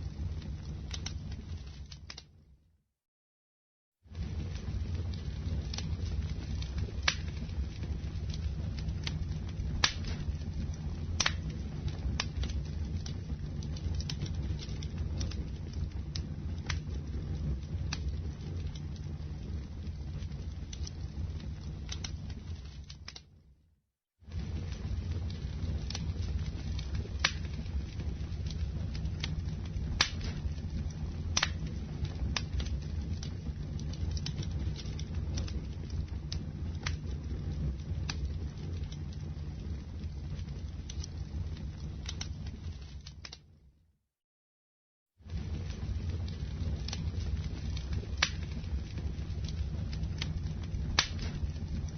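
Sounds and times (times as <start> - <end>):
wood popping and crackling: 0.0 - 2.4, 4.1 - 23.4, 24.3 - 43.5, 45.3 - 51.9
campfire flames rumbling: 0.0 - 2.6, 4.0 - 43.7, 45.1 - 51.9.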